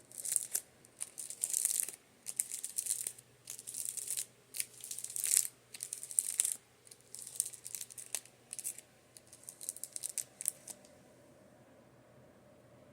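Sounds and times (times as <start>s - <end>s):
fan humming: 0.0s - 12.9s.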